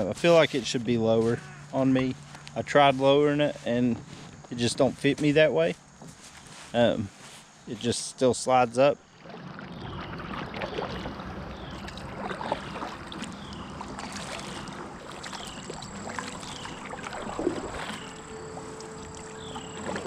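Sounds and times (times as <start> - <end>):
paddle strokes through water: 9.0 - 20.0
water splashing and dripping: 9.1 - 20.0.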